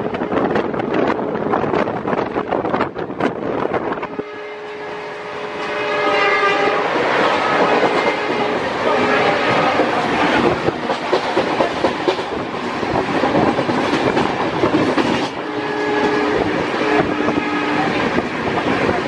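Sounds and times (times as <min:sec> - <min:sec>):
train rushing at speed: 0:00.0 - 0:19.0
train horn: 0:03.9 - 0:11.0, 0:15.4 - 0:19.0.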